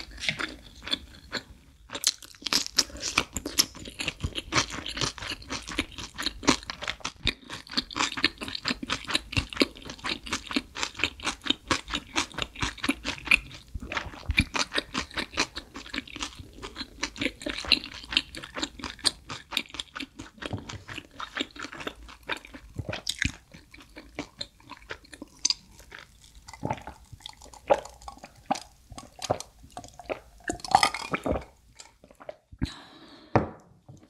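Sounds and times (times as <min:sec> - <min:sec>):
chewing and crunching pizza: 0:00.0 - 0:32.5
sipping and swallowing: 0:13.2 - 0:32.8.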